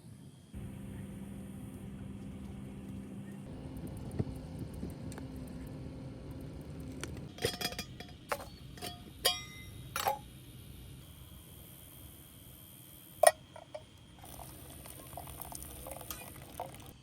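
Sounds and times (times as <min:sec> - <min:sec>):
faint low hum: 0:00.0 - 0:17.0
hard objects clinking and knocking: 0:07.3 - 0:10.2.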